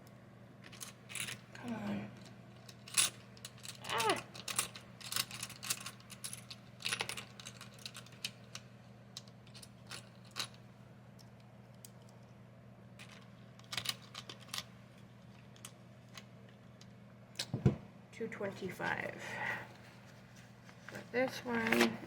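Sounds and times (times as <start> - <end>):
hands handling cash and envelopes: 13.0 - 16.2, 19.7 - 22.0.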